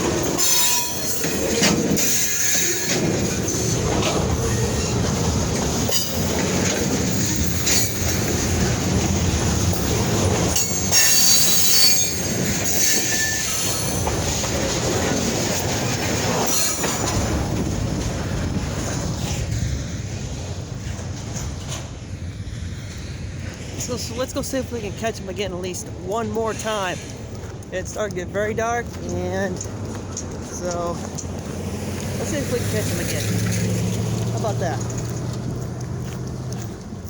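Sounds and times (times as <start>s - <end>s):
high wheel squeal: 0.0s - 8.7s, 9.7s - 15.0s
freight train wheels clattering: 0.0s - 37.0s.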